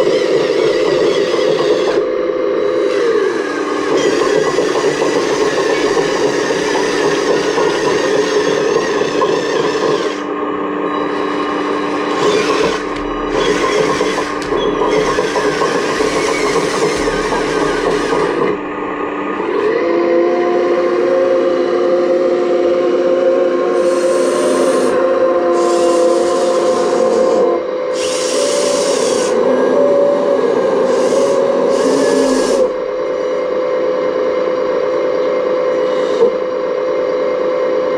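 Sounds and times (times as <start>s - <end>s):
model excavator motors whirring: 0.0s - 18.8s, 23.8s - 37.1s
gears rasping grind: 0.0s - 19.6s
hydraulic hiss: 23.8s - 25.0s.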